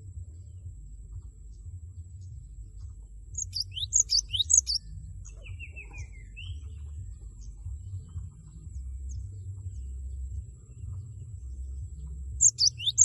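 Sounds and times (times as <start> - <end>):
steady low hum: 0.0 - 13.0
bird calling sharp high notes: 3.4 - 4.8, 12.4 - 13.0.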